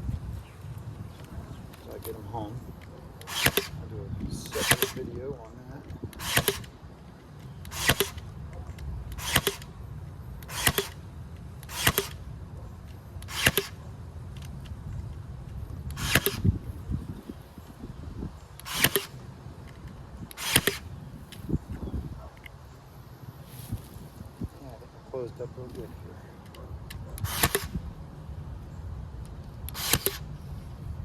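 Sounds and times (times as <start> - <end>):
staple gun snapping: 2.8 - 3.8, 4.5 - 5.1, 5.9 - 6.7, 7.6 - 8.2, 9.1 - 9.7, 10.4 - 11.0, 11.6 - 12.2, 13.2 - 13.8, 15.9 - 16.5, 18.6 - 19.1, 20.3 - 20.8, 26.9 - 27.8, 29.6 - 30.3.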